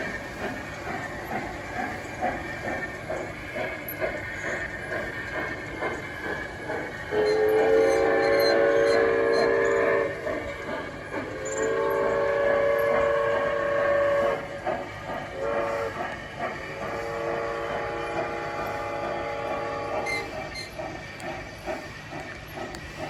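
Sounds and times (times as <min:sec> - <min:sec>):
train chuffing: 0:00.0 - 0:23.0
chorded train whistle: 0:06.7 - 0:20.8.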